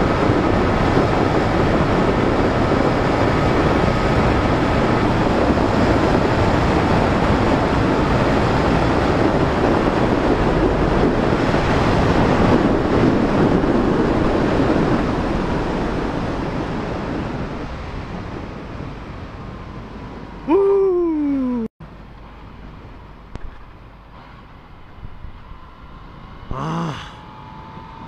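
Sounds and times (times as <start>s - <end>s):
wind rush over microphone: 0.0s - 21.6s.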